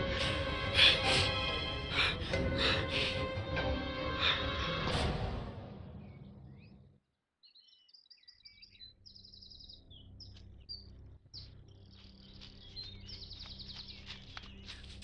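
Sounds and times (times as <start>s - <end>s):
birds singing and chirping: 5.9s - 15.0s.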